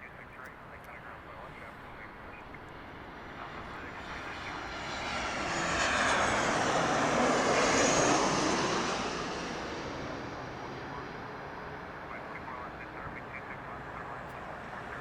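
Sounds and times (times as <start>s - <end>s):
jet engines passing by: 0.0s - 15.0s.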